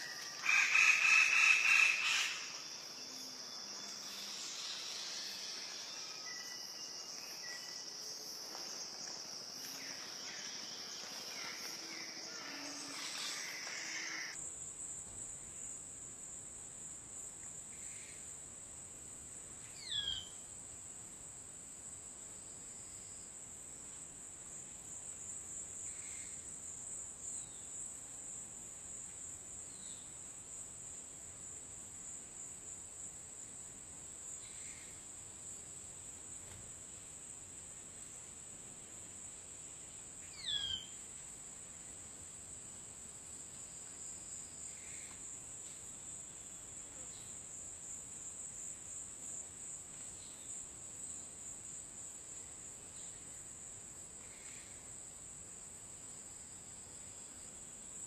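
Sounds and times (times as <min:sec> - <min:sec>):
faint bird chirps: 0:00.0 - 0:08.0, 0:09.7 - 0:14.4, 0:40.3 - 0:41.0
high-pitched insect drone: 0:00.0 - 0:14.4
downward-sweeping bird call: 0:11.2 - 0:14.4.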